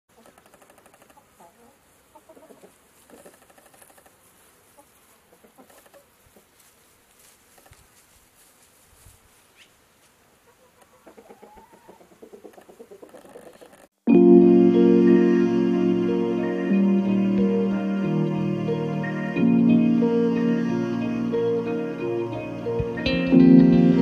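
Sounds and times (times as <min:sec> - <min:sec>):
chickens clucking: 0:00.1 - 0:06.7, 0:09.6 - 0:13.9.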